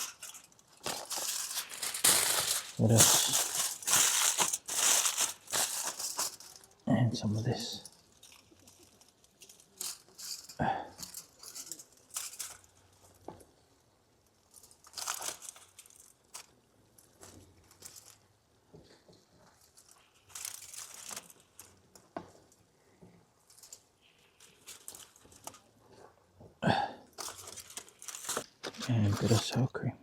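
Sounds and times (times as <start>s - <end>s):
food packaging rustling: 0.0s - 26.4s, 27.0s - 29.6s.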